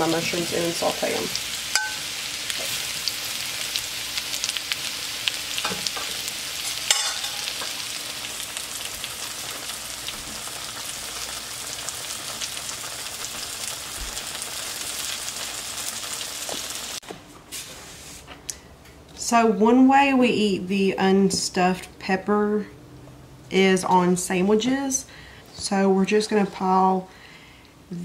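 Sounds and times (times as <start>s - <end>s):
mushrooms frying sizzle: 0.0s - 17.0s.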